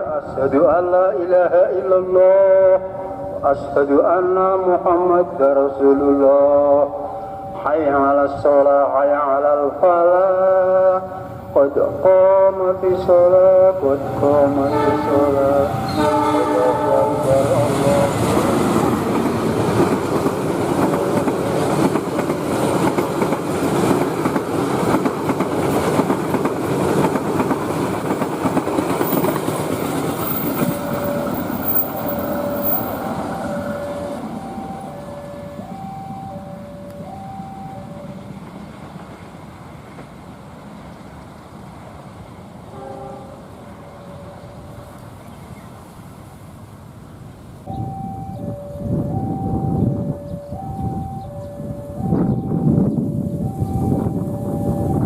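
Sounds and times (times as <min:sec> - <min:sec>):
train wheels clattering over rails: 0:17.7 - 0:33.0
two-note alternating tone: 0:30.6 - 0:38.2, 0:47.7 - 0:55.0.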